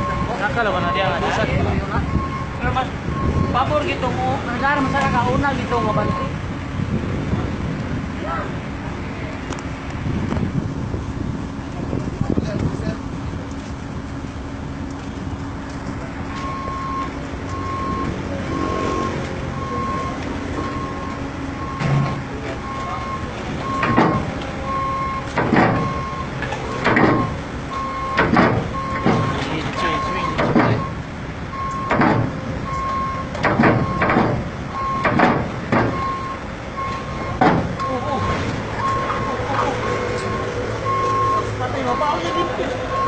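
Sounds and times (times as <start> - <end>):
reversing alarm beeping: 0.0 - 6.4, 16.4 - 32.0, 32.6 - 35.2, 35.8 - 43.0
diesel engine running: 0.0 - 43.0.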